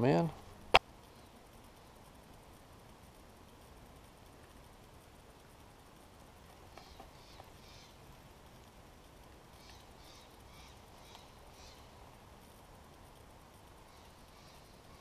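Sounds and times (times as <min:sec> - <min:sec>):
low steady hiss: 0:00.0 - 0:15.0
faint bird calls: 0:06.7 - 0:08.1, 0:09.5 - 0:12.0, 0:13.8 - 0:15.0.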